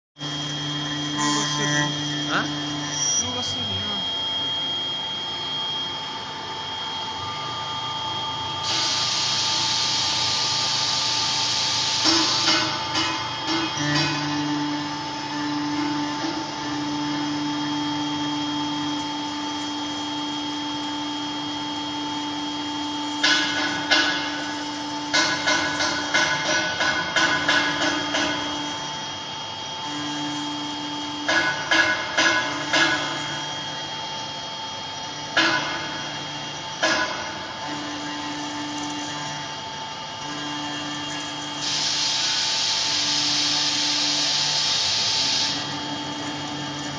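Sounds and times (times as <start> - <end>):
router spindle humming: 0.2 - 5.2, 37.5 - 41.6
high machine tone: 0.2 - 46.9
motor hum switching on and off: 0.2 - 46.9
loud hiss: 41.6 - 45.6.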